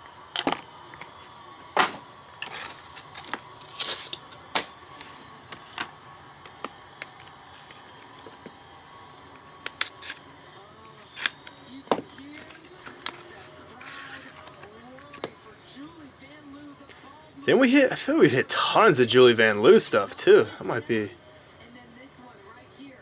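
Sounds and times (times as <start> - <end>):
faint steady hum: 0.0 - 23.0
packaging rustling: 0.3 - 8.7, 9.6 - 10.3, 10.9 - 15.3
sharp clicks of card handling: 9.6 - 10.3, 11.1 - 15.3.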